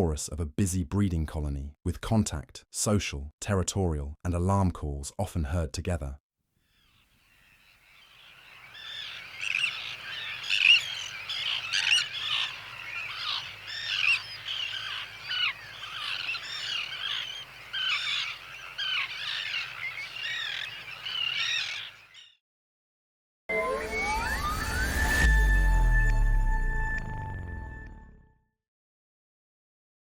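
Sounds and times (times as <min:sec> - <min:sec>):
terns calling harshly: 0:06.7 - 0:22.4.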